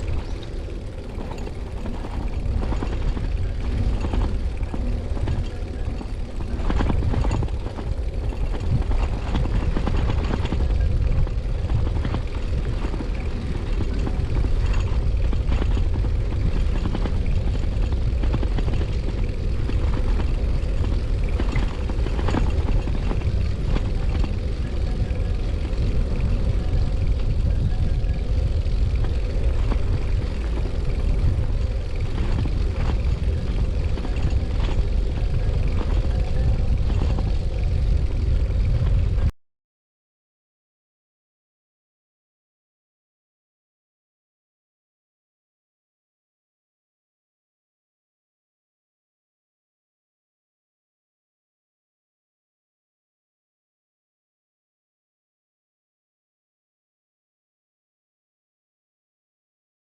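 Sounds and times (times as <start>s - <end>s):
bicycle riding rumble: 0.0s - 39.3s
bike clicks and rattles: 0.0s - 39.3s
wind rush: 0.0s - 39.3s.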